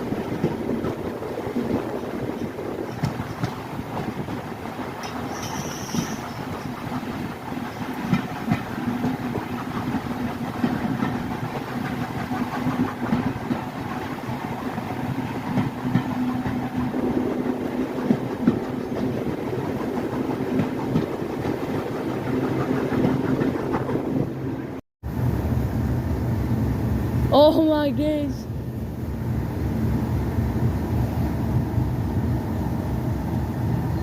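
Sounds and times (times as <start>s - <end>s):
train rumble and hum: 0.0s - 34.0s
wheels clicking over rail joints: 0.2s - 24.3s.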